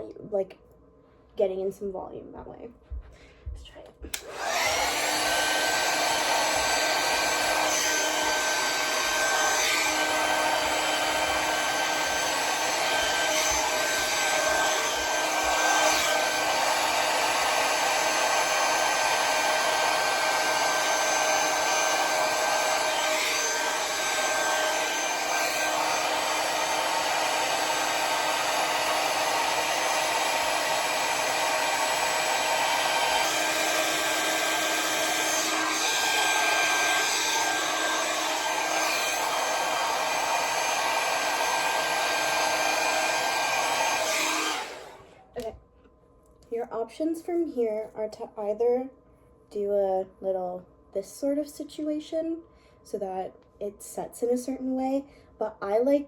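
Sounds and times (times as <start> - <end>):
hair dryer running: 4.1 - 45.5.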